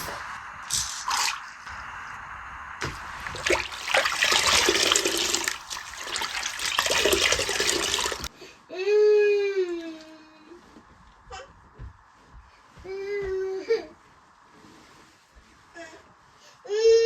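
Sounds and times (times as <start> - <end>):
water running and splashing: 0.7 - 1.7, 2.8 - 8.3.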